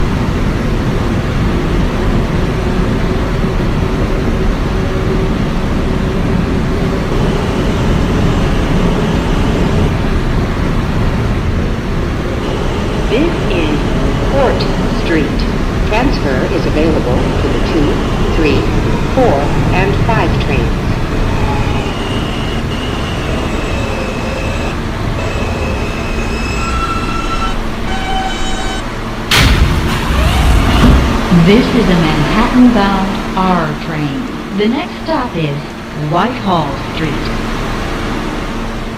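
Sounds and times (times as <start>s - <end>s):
subway wheels rumbling on rails: 0.0s - 38.9s
thin electrical whines: 6.7s - 32.1s.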